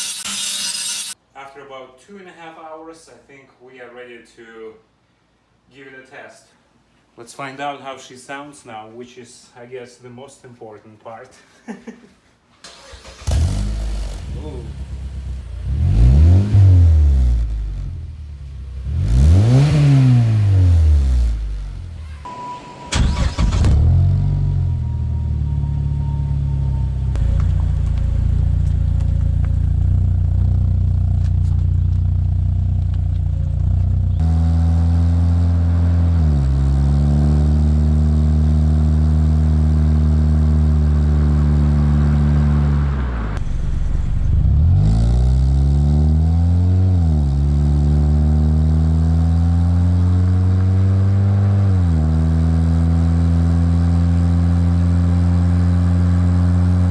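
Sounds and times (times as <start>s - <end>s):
car engine idling and revving: 12.7s - 22.3s, 23.1s - 56.9s.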